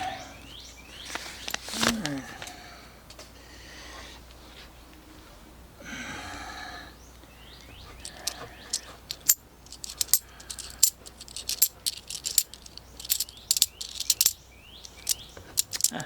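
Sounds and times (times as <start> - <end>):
coins clicking and clinking: 8.0 - 16.0.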